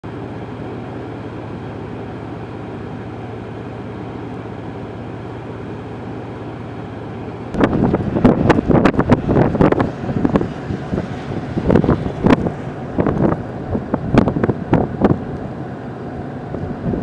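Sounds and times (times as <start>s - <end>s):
low rumble with faint hum: 0.0s - 17.0s
wind buffeting microphone: 7.5s - 15.6s, 16.4s - 17.0s.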